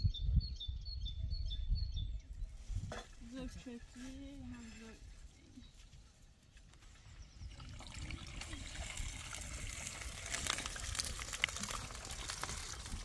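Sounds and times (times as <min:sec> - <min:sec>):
water trickling and splashing: 0:06.9 - 0:13.0.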